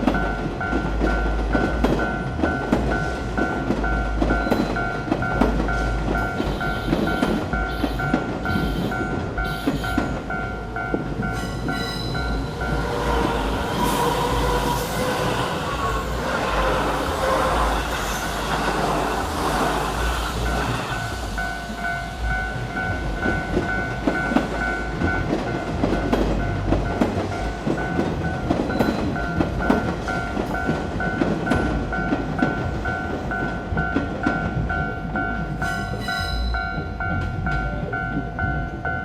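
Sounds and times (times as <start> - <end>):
level crossing warning bell: 0.0 - 39.0
train wheels clacking over rail joints: 0.0 - 39.0.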